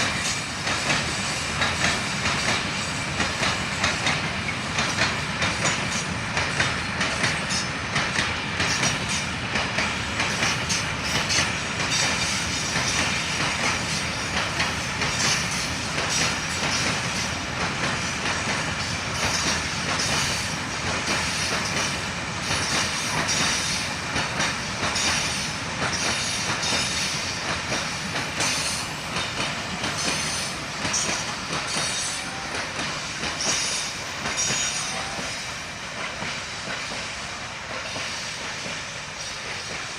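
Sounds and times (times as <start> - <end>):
train wheels clattering over rail joints: 0.0 - 39.9
wheels squealing on rails: 8.6 - 9.4, 10.0 - 17.4, 18.2 - 39.9.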